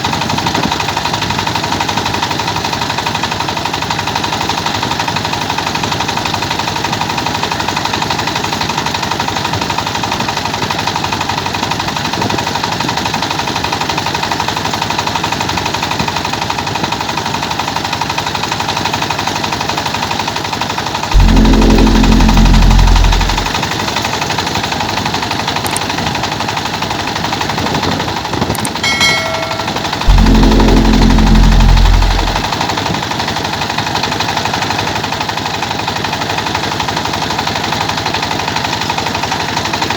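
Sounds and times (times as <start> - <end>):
low rumble: 21.2 - 23.7, 30.1 - 32.6.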